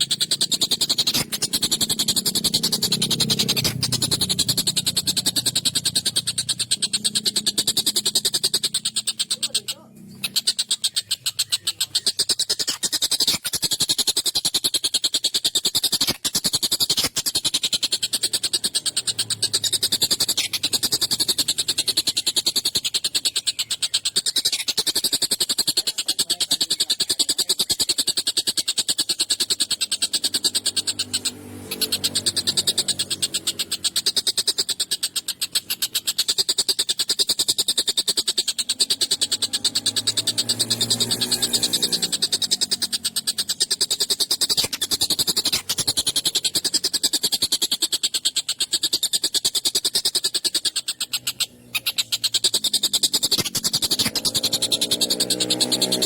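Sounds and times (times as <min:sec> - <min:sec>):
kingfisher chattering rattle: 0:00.0 - 0:56.0.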